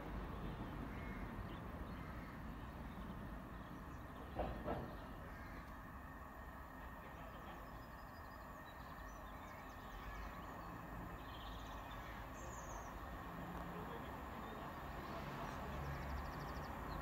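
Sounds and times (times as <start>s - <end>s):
distant diesel train rumble: 0.0s - 17.0s
small birds chirping: 7.1s - 17.0s.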